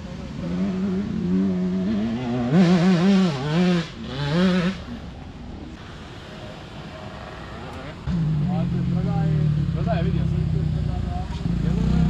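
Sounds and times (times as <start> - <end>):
motorbike engine revving: 0.0 - 5.3, 8.0 - 12.0.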